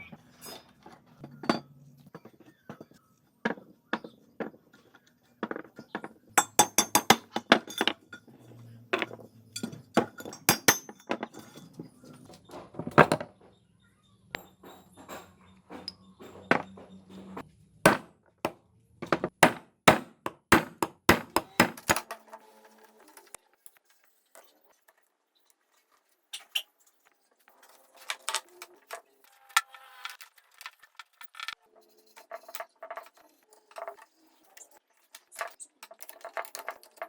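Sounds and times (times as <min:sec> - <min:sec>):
hand tools clinking on metal: 0:05.4 - 0:12.2.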